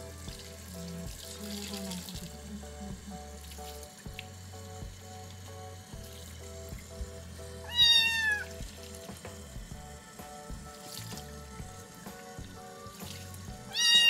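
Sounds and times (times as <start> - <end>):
tap water trickling: 0.0 - 14.0
kitten meowing: 7.6 - 8.6, 13.7 - 14.0.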